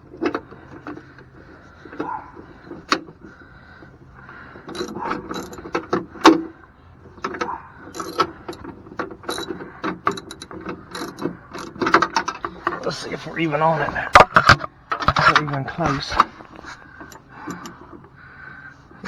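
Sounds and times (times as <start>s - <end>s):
metal clanks: 4.6s - 18.2s
ratchet wrench clicking: 4.7s - 5.8s, 7.9s - 8.6s, 9.3s - 12.4s, 16.5s - 17.8s.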